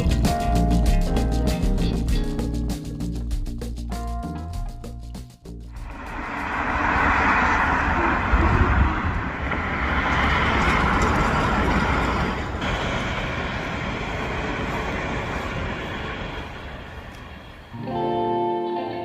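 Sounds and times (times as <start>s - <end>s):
road noise: 5.4s - 19.0s
rushing wind: 5.7s - 18.0s.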